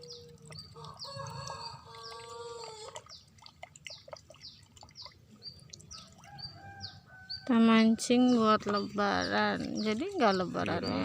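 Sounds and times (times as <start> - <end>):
small birds chirping: 0.0 - 11.0
rooster crowing: 0.8 - 2.9, 6.3 - 7.4.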